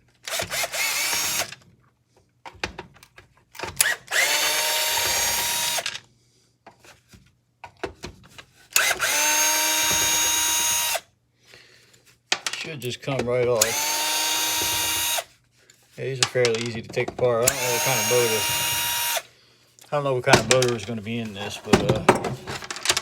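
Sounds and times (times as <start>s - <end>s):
power drill motor whining: 0.3s - 1.5s, 3.8s - 6.0s, 8.8s - 11.0s, 13.6s - 15.3s, 17.4s - 19.3s
handling clicks and knocks: 20.3s - 23.0s.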